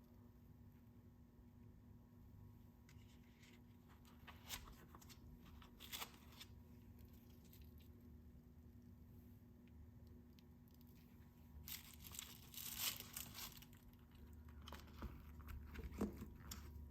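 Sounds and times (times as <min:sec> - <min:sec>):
soft rustling: 0:10.8 - 0:16.3.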